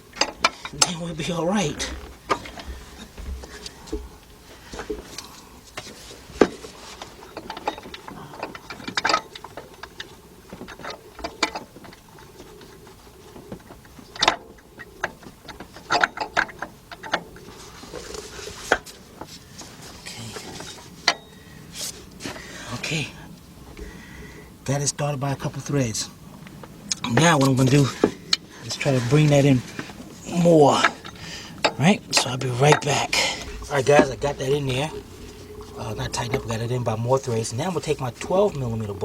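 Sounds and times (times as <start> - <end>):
metallic clicks and knocks: 13.4 - 17.5.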